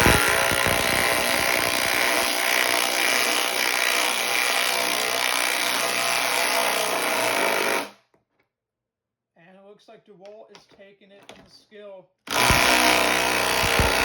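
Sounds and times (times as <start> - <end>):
impact drivers rattling: 0.0 - 4.5, 12.3 - 14.0.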